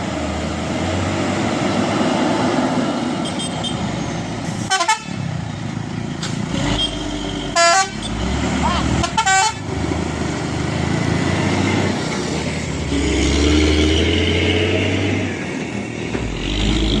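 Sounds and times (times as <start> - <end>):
truck horn toot: 4.6 - 5.2, 6.7 - 8.2, 8.8 - 9.7.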